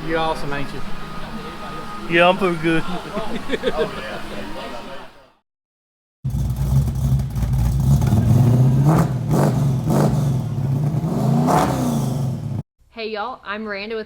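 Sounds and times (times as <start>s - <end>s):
car engine running and revving: 6.3s - 12.6s.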